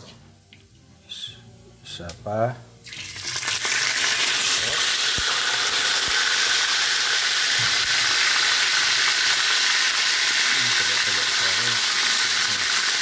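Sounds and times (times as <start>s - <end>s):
pork chop sizzling in oil: 2.8s - 13.0s.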